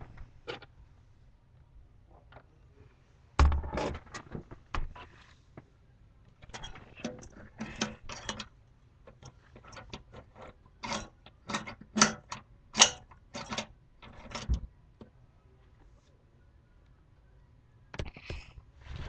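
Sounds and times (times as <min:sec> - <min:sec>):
tools clicking and knocking: 0:09.1 - 0:14.6.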